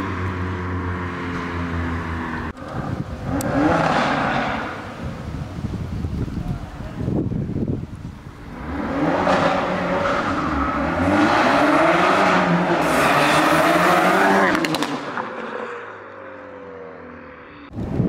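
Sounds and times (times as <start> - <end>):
car engine accelerating: 0.0 - 5.1, 8.4 - 17.2.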